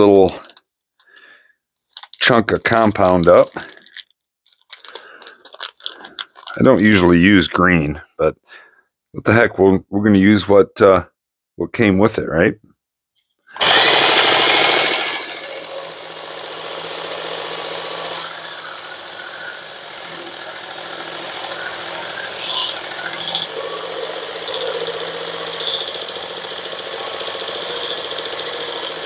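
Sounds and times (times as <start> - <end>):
belt sharpener motor hum: 13.6 - 29.0
loud high squeal: 18.2 - 19.8
compound scraping on belt: 18.2 - 29.0.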